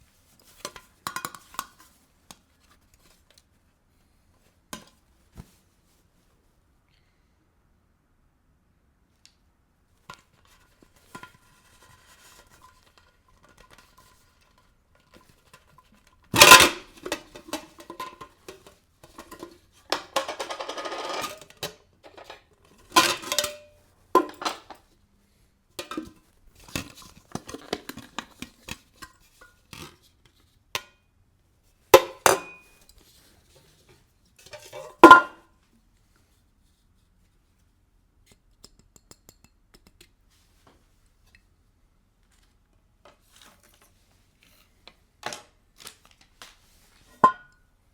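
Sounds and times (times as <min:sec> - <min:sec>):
bottle box knocks and clinks: 0:34.8 - 0:35.4.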